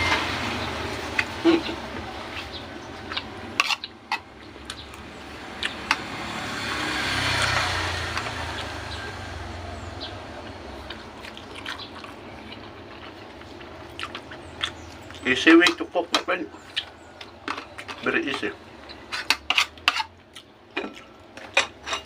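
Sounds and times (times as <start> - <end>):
vehicle passing: 0.0 - 15.6.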